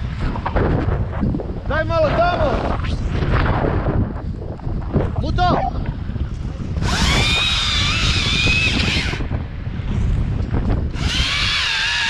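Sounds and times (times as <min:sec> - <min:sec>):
wind buffeting microphone: 0:00.0 - 0:12.0
chainsaw cutting: 0:06.8 - 0:09.2, 0:10.9 - 0:12.0.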